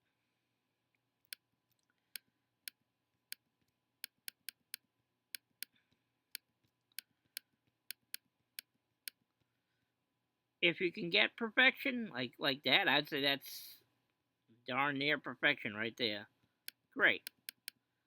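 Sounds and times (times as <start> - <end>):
computer mouse clicking: 4.0 - 5.7, 6.3 - 8.7, 17.2 - 17.8.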